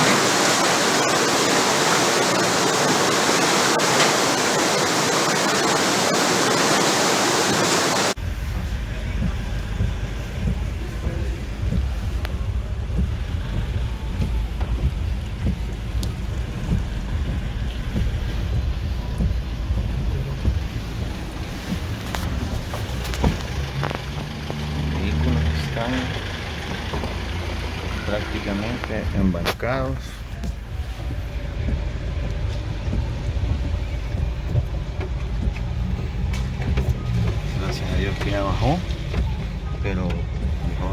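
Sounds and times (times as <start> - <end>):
river rushing: 0.0 - 8.2.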